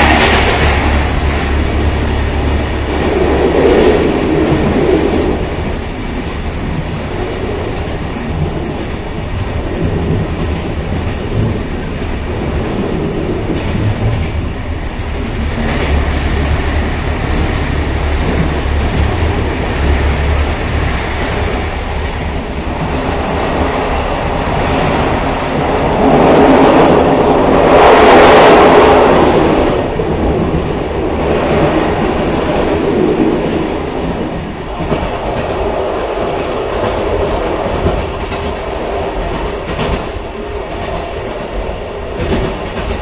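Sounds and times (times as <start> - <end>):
railcar wheels rumbling on rails: 0.0 - 43.0.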